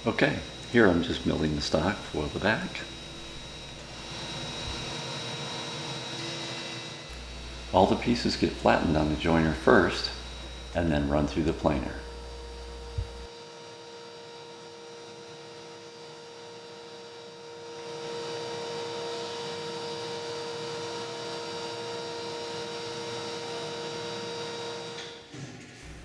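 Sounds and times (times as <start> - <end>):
woodworking machine humming: 0.0 - 13.3.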